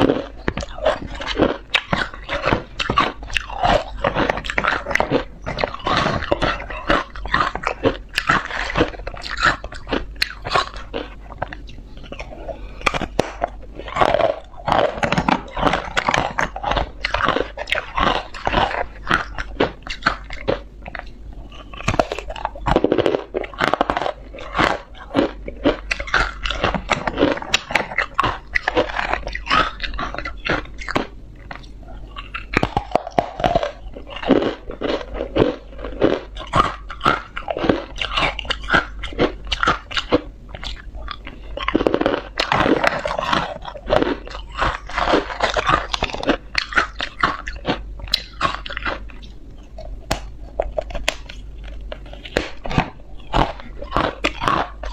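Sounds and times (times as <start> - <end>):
ice crunching as it is chewed: 0.0 - 54.9.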